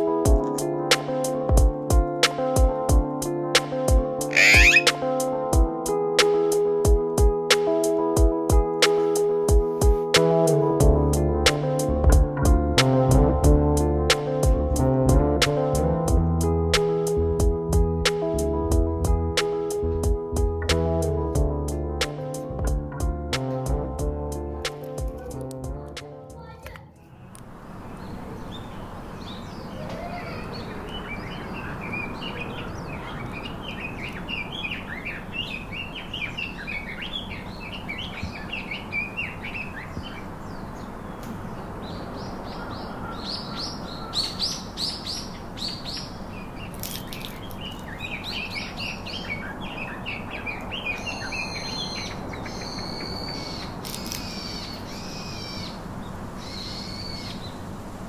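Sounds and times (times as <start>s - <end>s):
parakeets chattering: 4.3s - 4.9s.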